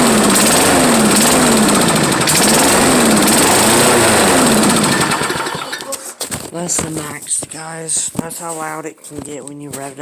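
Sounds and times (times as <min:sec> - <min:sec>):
lawn mower engine running: 0:00.0 - 0:06.2.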